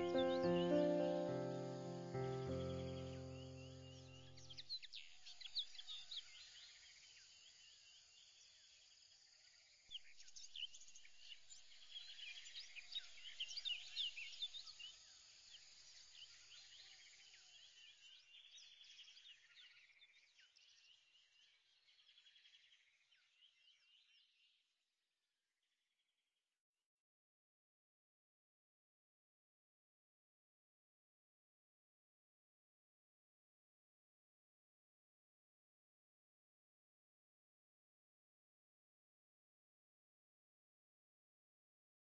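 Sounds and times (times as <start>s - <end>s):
birds chirping and trilling: 0.0s - 6.8s.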